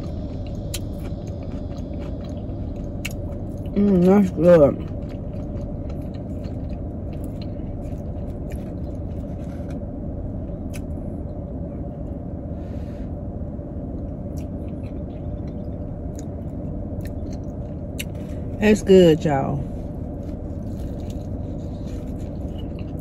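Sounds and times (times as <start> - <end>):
person chewing: 0.0 - 9.9, 10.5 - 11.0, 13.9 - 18.6, 19.9 - 23.0
low hum inside a car: 0.0 - 23.0.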